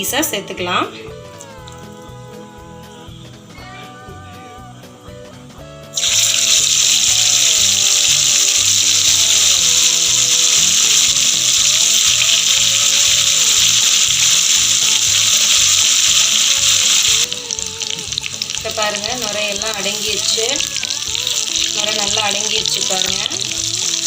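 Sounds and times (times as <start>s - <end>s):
chicken deep-frying in hot oil: 6.0s - 24.0s.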